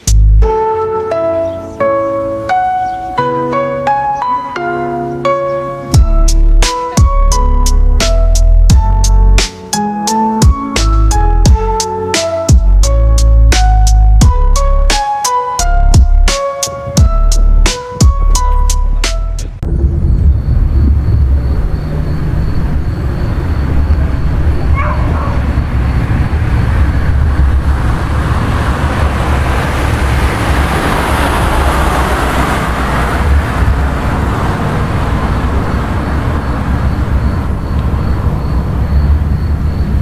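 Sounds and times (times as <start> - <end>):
vehicle rumble: 5.1 - 9.4, 15.6 - 40.0
rushing noise: 15.6 - 40.0.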